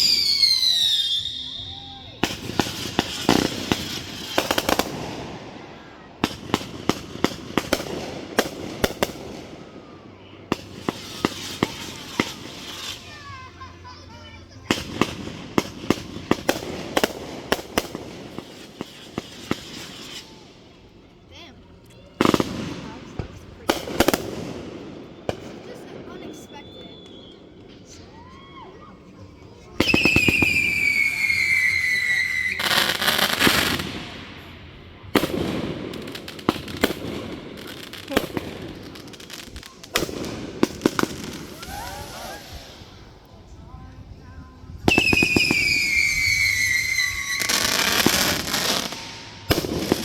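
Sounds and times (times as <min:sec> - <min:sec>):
fireworks banging: 0:02.2 - 0:05.6, 0:06.2 - 0:09.7, 0:10.5 - 0:13.6, 0:14.6 - 0:20.5, 0:22.2 - 0:27.8, 0:29.7 - 0:34.5, 0:35.1 - 0:43.0, 0:44.8 - 0:50.0.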